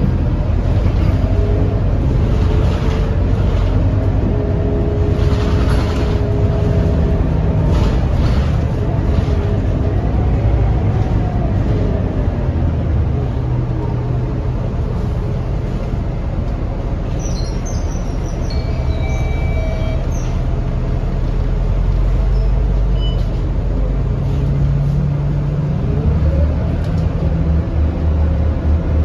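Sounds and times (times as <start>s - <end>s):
bus diesel engine humming: 0.0s - 29.0s.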